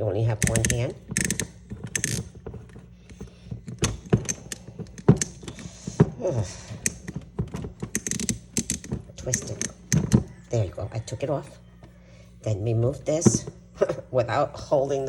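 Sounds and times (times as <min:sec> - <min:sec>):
plastic clicks and knocks: 0:00.4 - 0:10.3.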